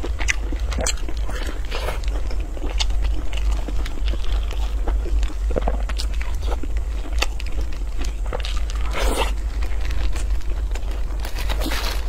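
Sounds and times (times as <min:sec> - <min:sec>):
chewing and crunching seafood: 0:00.0 - 0:12.0
low steady hum: 0:00.0 - 0:12.0
plastic gloves rustling: 0:07.6 - 0:12.0.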